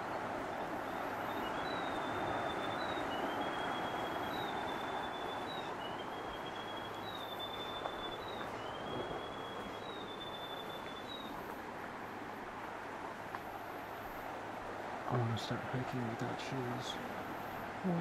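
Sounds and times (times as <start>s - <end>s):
bird whistling long notes: 1.0s - 11.4s.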